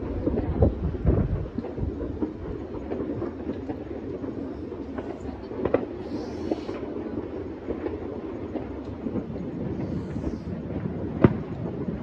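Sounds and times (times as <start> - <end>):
fireworks crackling and banging: 0.0 - 12.0
sharp firework bang: 9.8 - 12.0.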